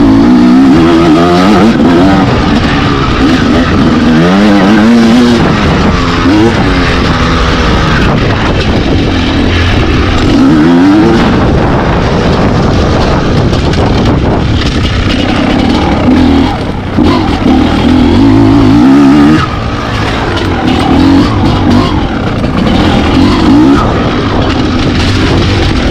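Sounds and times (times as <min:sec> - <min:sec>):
dirt bike engines revving: 0:00.0 - 0:25.9.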